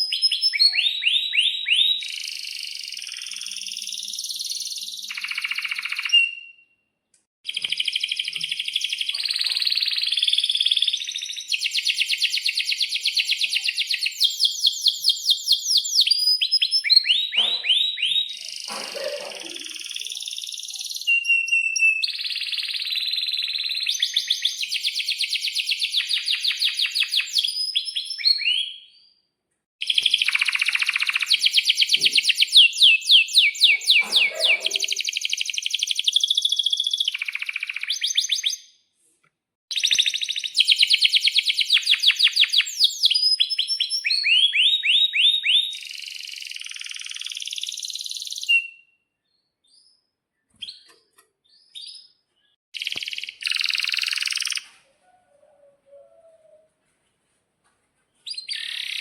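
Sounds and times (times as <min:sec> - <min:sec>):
canary singing trills: 0:29.8 - 0:38.0.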